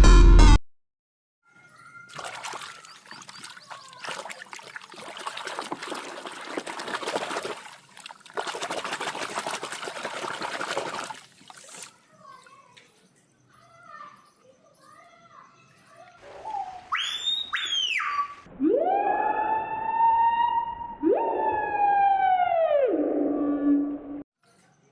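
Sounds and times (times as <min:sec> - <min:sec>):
water running and splashing: 0:02.1 - 0:12.0.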